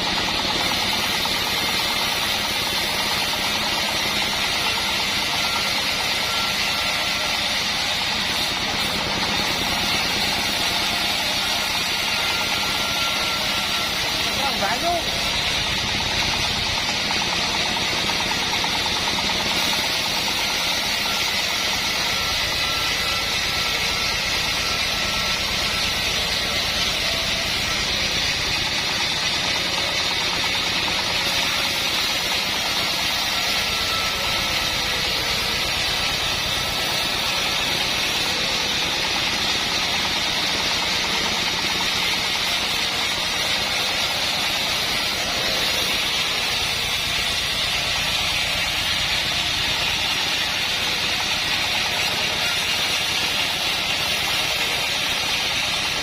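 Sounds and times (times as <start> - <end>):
high-pitched sawmill noise: 0.0 - 56.0.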